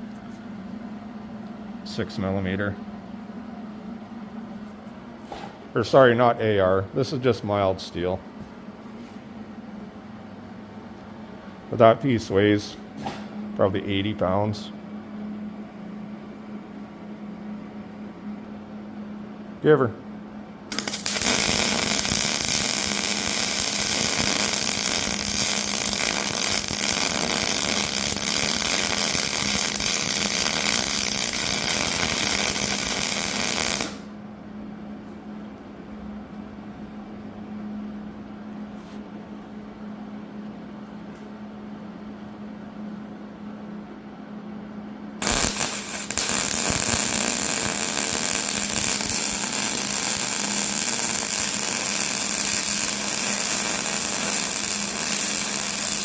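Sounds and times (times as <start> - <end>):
steady low hum: 0.0 - 56.0
harsh metalworking noise: 20.7 - 34.0, 45.2 - 56.0.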